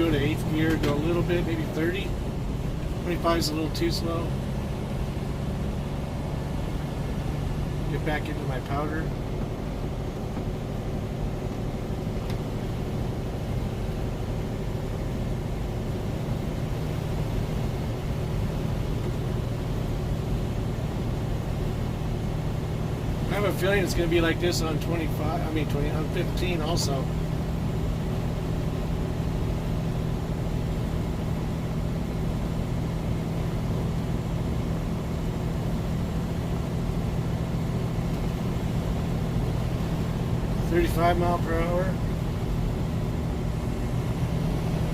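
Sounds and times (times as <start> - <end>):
diesel truck engine running: 0.0 - 44.9
tyre road noise in snow: 0.0 - 44.9.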